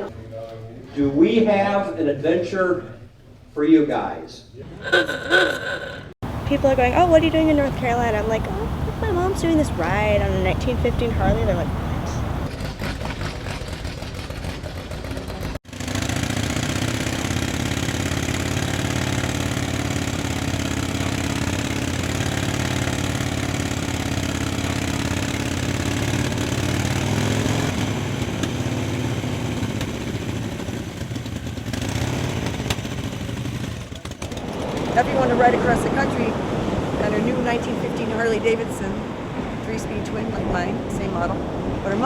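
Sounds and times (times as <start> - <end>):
motorcycle engine running: 6.2 - 35.6.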